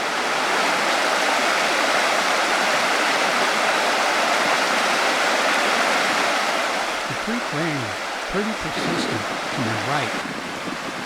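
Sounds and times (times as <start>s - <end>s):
creek rushing over rock: 6.6s - 11.0s.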